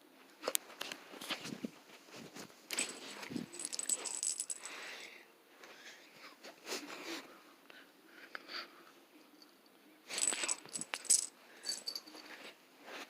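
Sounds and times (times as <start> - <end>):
thin high ringing: 2.7 - 5.0, 10.1 - 12.3.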